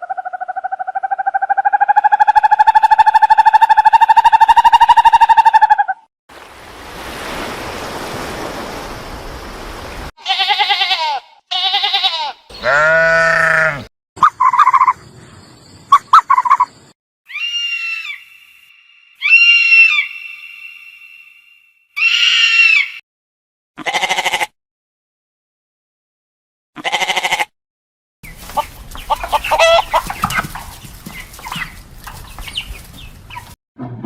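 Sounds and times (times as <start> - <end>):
animal cries and bleats: 10.2 - 14.8, 17.3 - 18.4, 19.2 - 20.1, 22.0 - 23.0, 23.8 - 24.6, 26.8 - 27.5, 28.6 - 30.1
rasping animal noise: 11.5 - 15.2, 28.3 - 33.6.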